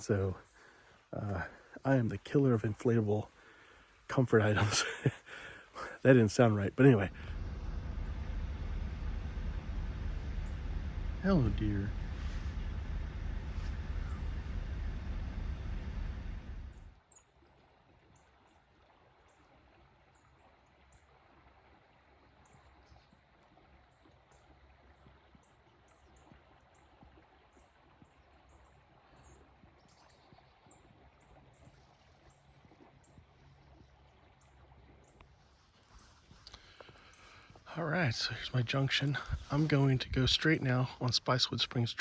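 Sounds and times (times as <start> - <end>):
distant birds chirping: 0.0 - 17.0, 29.2 - 42.0
soft steady hiss: 0.0 - 17.0, 33.3 - 42.0.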